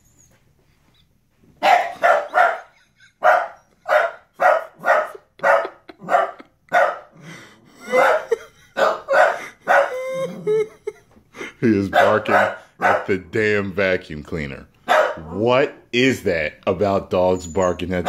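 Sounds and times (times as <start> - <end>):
dog barking: 1.6 - 7.1, 7.8 - 10.0, 11.9 - 13.1, 14.8 - 15.4.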